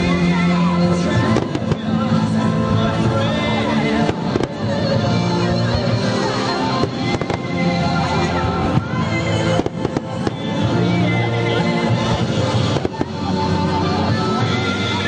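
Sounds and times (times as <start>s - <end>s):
loud music: 0.0s - 15.0s
fireworks cracking: 1.2s - 11.2s, 12.0s - 13.6s.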